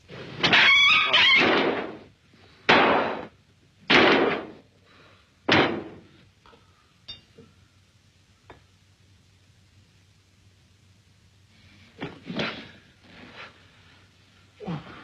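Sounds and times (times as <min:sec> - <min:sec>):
loud crashes: 0:00.4 - 0:02.1, 0:03.9 - 0:04.6.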